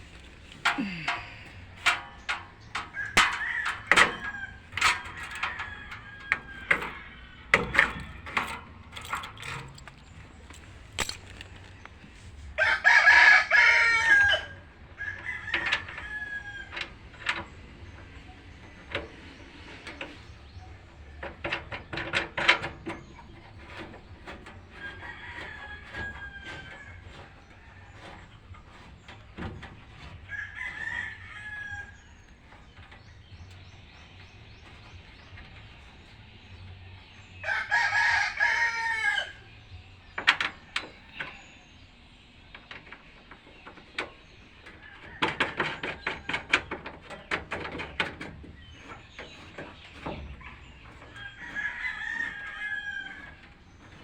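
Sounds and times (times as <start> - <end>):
sharp clicks and knocks: 0.0 - 12.1, 16.7 - 20.2, 21.0 - 30.8, 40.1 - 41.5, 42.5 - 54.0
rooster crowing: 12.6 - 16.7, 37.4 - 39.4, 51.2 - 53.4.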